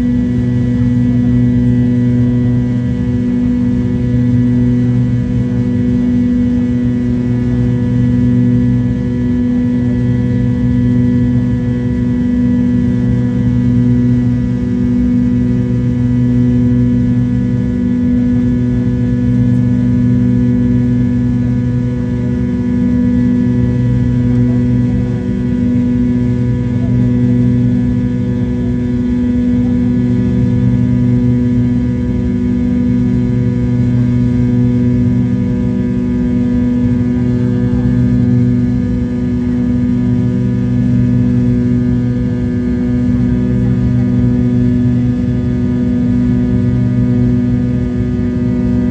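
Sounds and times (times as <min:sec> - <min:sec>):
jet engines droning: 0:12.8 - 0:48.9.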